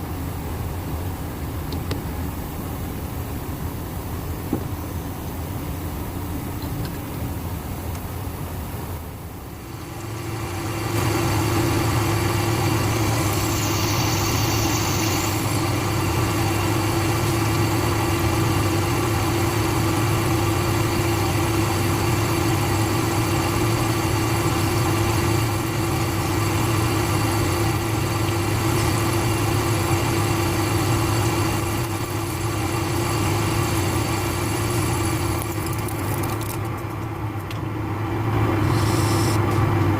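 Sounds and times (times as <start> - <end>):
metal lathe humming: 9.7 - 35.5.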